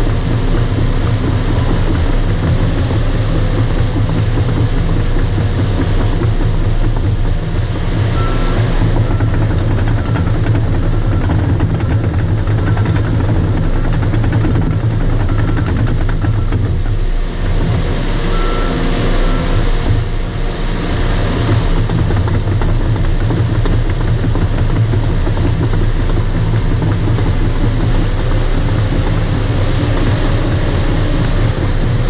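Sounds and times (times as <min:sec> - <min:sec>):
bulldozer diesel engine running: 0:00.0 - 0:32.0
tracks clattering: 0:00.0 - 0:32.0
reverse alarm beeping: 0:08.1 - 0:11.5, 0:18.3 - 0:20.1.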